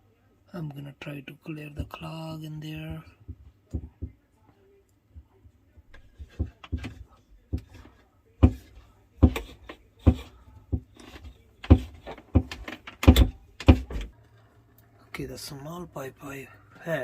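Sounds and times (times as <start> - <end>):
pipe knocking and scraping: 5.9 - 14.1.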